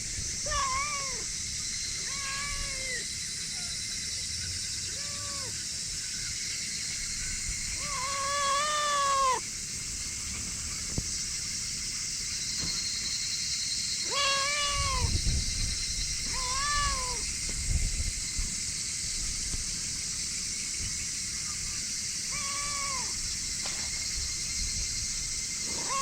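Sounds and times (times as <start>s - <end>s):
cat meowing: 0.5s - 1.3s, 2.0s - 3.0s, 4.9s - 5.6s, 7.8s - 9.4s, 14.0s - 15.2s, 16.3s - 17.2s, 22.3s - 23.2s, 25.7s - 26.0s.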